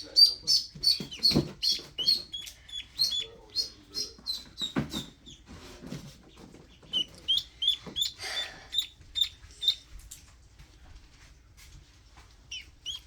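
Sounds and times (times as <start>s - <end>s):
ducklings peeping: 0.0s - 9.9s, 12.5s - 13.0s.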